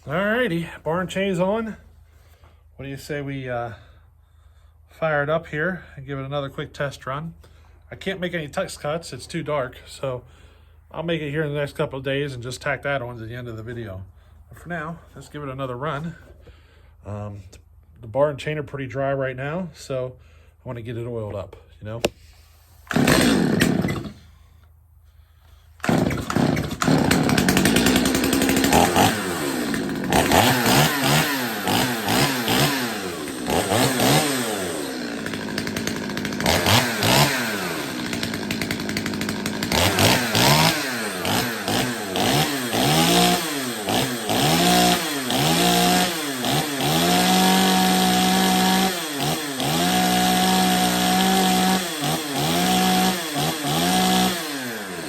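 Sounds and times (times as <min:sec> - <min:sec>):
chainsaw revving: 0:22.9 - 0:24.4, 0:25.8 - 0:55.0.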